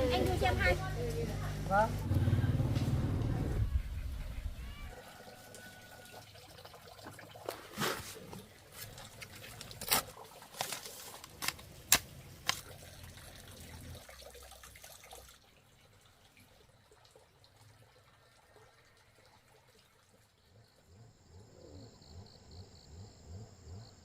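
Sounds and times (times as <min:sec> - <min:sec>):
water splashing and dripping: 0:04.8 - 0:20.6
water trickling: 0:04.8 - 0:21.0.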